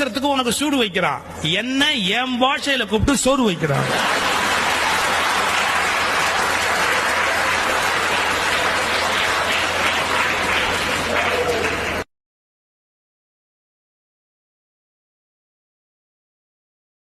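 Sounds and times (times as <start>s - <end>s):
audience applauding: 3.8s - 12.1s.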